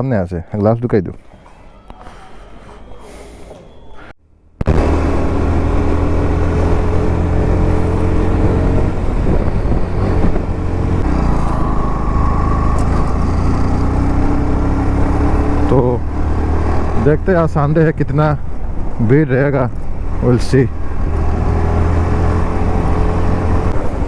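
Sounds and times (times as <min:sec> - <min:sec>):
motorcycle engine running: 0:04.6 - 0:17.3.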